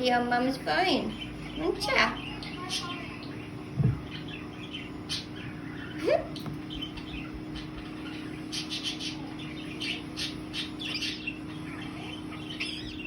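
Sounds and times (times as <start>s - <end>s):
steady low hum: 0.0s - 13.0s
parrot chirping and clicking: 2.2s - 3.4s.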